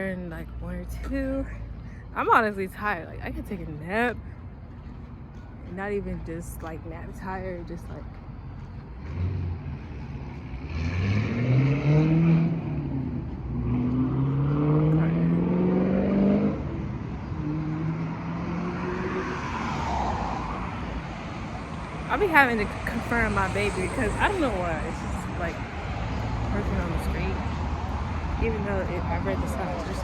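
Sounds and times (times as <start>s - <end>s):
car engine accelerating: 9.0s - 20.0s.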